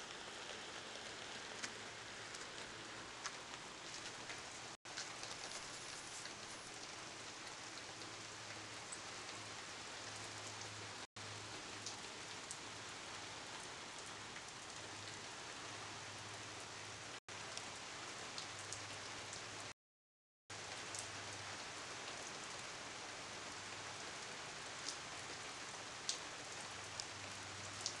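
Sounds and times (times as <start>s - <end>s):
raindrops ticking: 0.0s - 12.6s
steady rain hiss: 0.0s - 19.8s, 20.5s - 28.0s.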